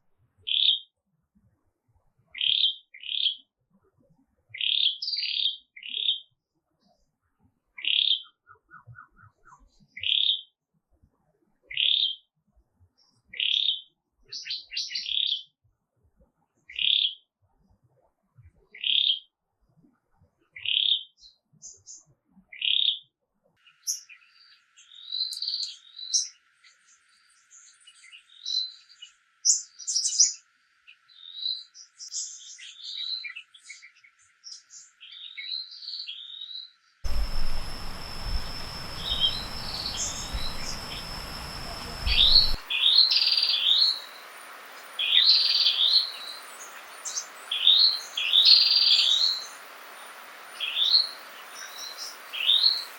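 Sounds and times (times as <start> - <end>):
bird twittering: 37.1 - 52.9
songbird chirping: 37.1 - 52.9
steady hiss: 37.1 - 52.9
thin high steady tone: 37.1 - 52.9.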